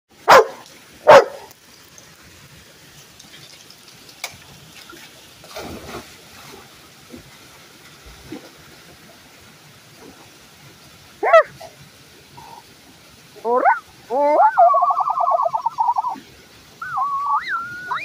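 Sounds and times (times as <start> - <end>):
rush of waterfall: 0.1 - 18.0
dog barking: 0.3 - 1.5, 11.2 - 11.5.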